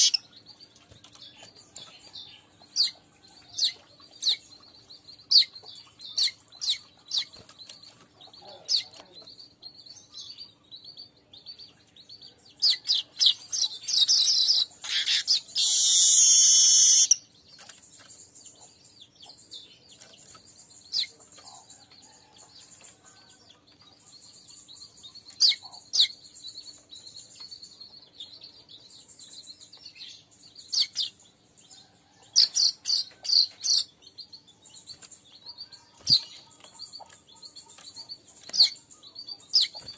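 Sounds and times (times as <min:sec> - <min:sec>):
bird chirping and chattering: 0:00.0 - 0:31.5, 0:32.1 - 0:39.9
bird harsh buzzing wheeze: 0:14.9 - 0:17.2.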